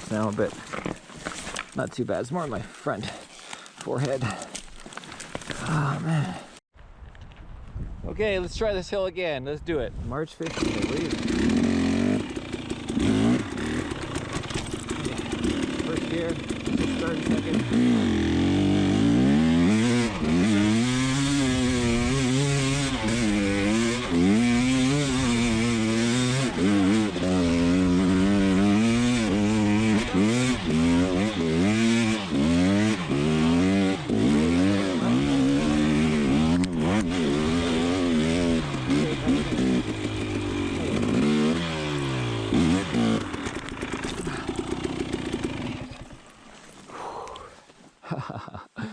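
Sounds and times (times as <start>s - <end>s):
dirt bike engine revving: 10.4s - 46.3s.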